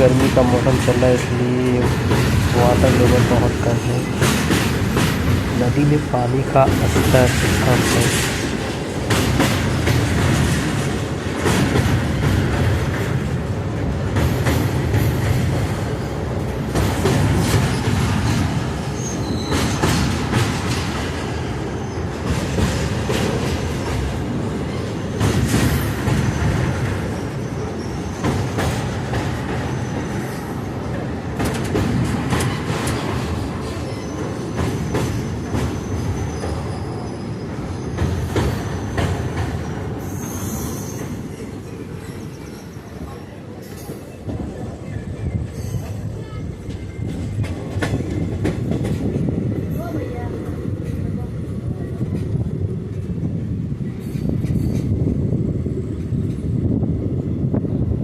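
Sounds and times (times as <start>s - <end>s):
train wheels rumbling on rail: 0.0s - 58.0s
faint high wheel squeal: 40.0s - 44.1s.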